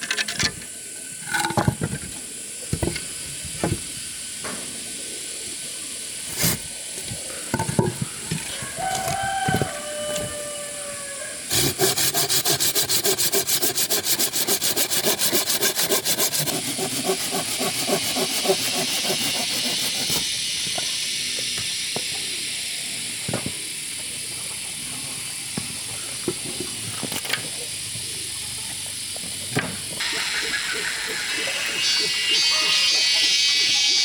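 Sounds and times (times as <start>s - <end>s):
hand saw cutting wood: 6.3s - 6.7s, 11.5s - 20.3s.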